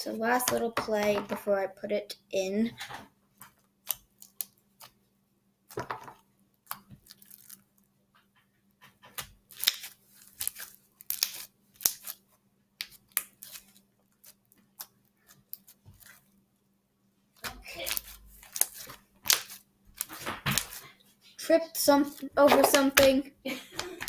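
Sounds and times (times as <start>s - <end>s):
slime popping and crackling: 6.7s - 7.6s, 9.2s - 12.2s, 12.8s - 16.2s, 17.6s - 20.9s, 21.9s - 23.2s.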